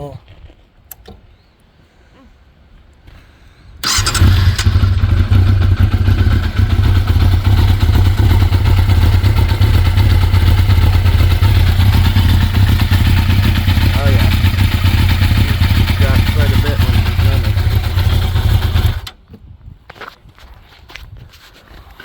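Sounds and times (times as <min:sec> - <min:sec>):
motorcycle engine starting and running: 0:03.8 - 0:19.2.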